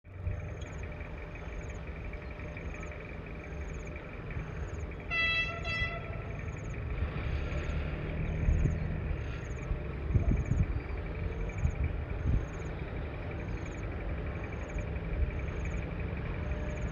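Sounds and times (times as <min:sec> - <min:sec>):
locomotive engine rumble: 0:00.1 - 0:16.9
train horn blast: 0:05.1 - 0:06.4.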